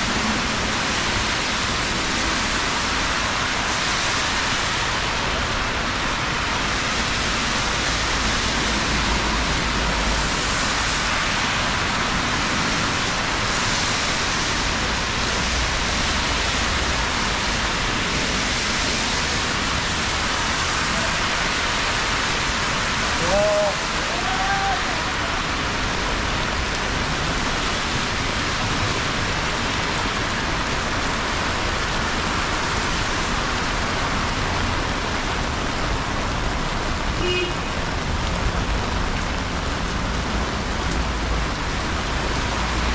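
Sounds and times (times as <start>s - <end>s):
rain falling: 0.0s - 42.9s.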